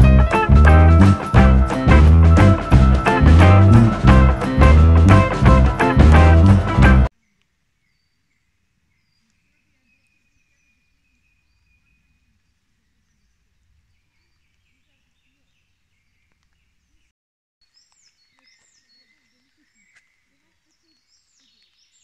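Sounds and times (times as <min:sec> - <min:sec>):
bird chirps: 0:07.2 - 0:22.0.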